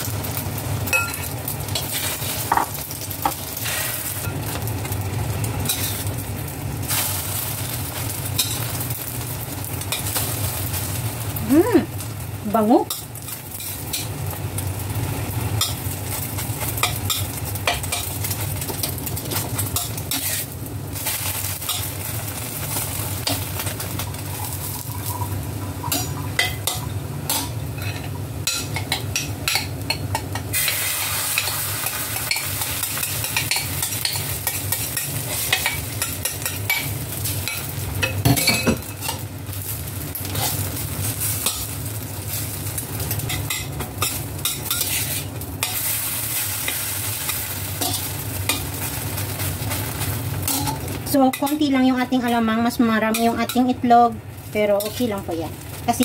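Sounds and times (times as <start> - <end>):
patties sizzling in hot oil: 0.0 - 56.0
metal spatula scraping a pan: 19.6 - 21.9, 43.2 - 51.6.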